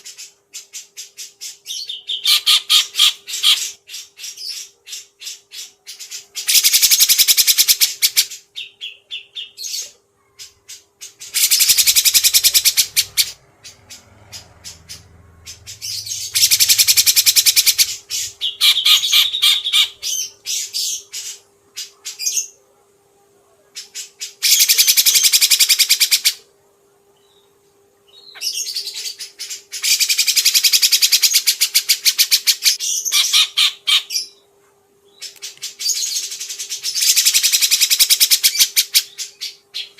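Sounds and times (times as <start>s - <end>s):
songbird rattling trills: 11.3s - 20.9s.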